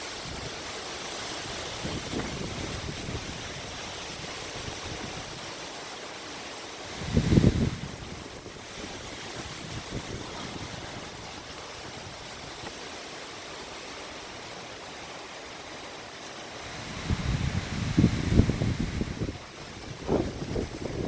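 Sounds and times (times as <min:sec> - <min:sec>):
wind hiss: 0:00.0 - 0:21.0
gusts buffeting microphone: 0:01.3 - 0:05.5, 0:06.8 - 0:13.0, 0:16.6 - 0:21.0.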